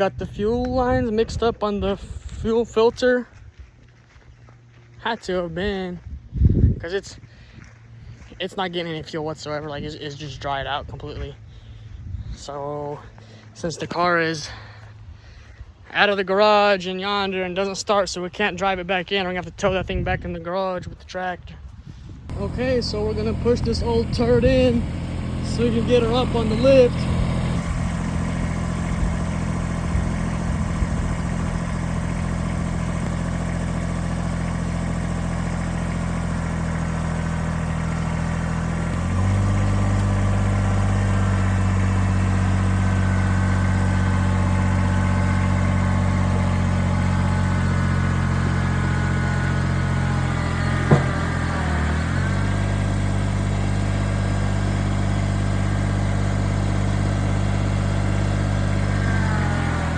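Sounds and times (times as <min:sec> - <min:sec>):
tractor engine running: 0:22.2 - 0:59.9
sharp knock: 0:50.9 - 0:51.4.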